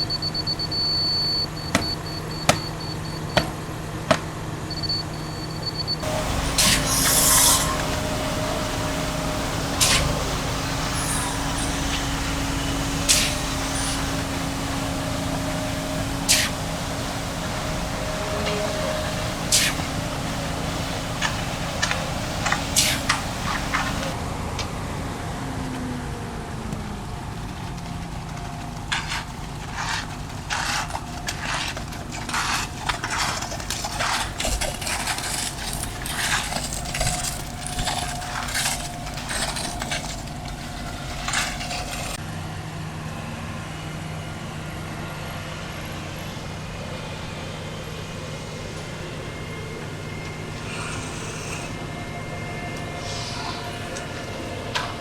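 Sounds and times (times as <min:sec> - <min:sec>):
engine running steadily: 0:00.0 - 0:55.0
scrapes knocks and clatters: 0:26.6 - 0:42.2.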